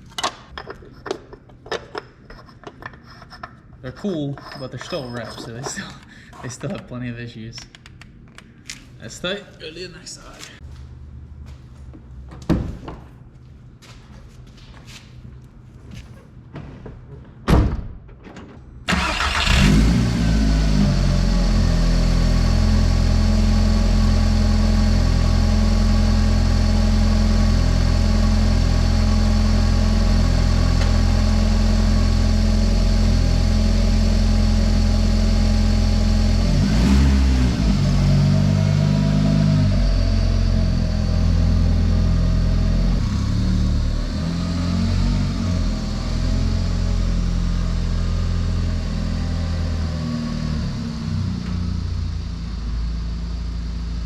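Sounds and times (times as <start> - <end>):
car engine starting and idling: 18.8 - 54.0.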